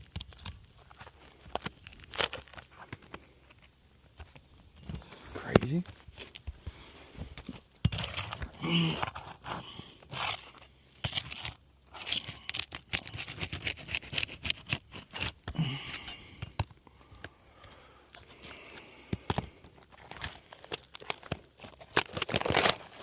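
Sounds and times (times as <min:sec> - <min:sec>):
tool scraping on shingles: 0:07.2 - 0:16.6.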